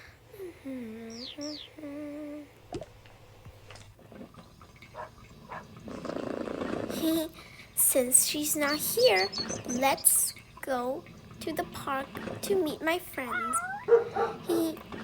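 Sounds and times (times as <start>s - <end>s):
person humming: 0.3s - 2.6s
high falling chirps: 13.3s - 14.2s.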